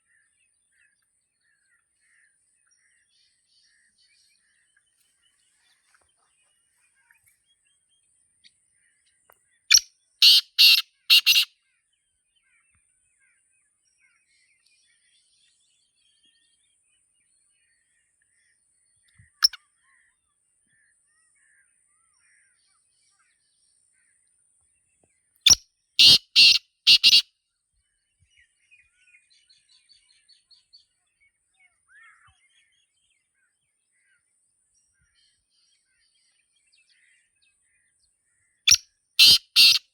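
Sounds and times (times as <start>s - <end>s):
faint small bird chirps: 0.0s - 39.9s
francolin calling: 9.7s - 11.5s, 25.5s - 27.2s, 38.7s - 39.8s.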